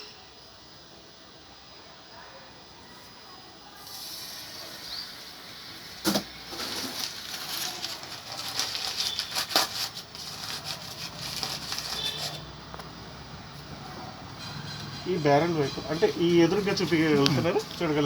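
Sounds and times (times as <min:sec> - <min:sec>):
chamber hissing and crackling: 0:03.7 - 0:18.0.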